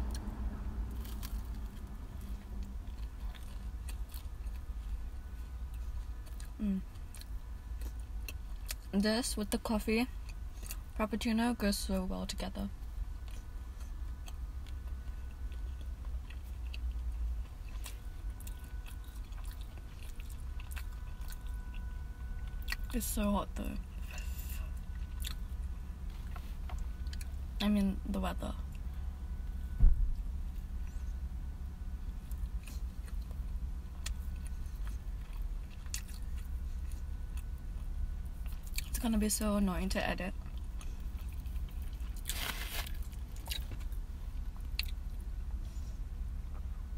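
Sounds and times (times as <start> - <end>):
low rumble: 0.0 - 8.8
steady low rumble: 0.0 - 46.9
person chewing: 0.9 - 5.0, 5.6 - 8.9, 13.2 - 22.9, 24.0 - 27.4, 34.0 - 39.0, 40.4 - 45.2
closed-mouth chewing: 13.2 - 22.9, 34.0 - 39.0.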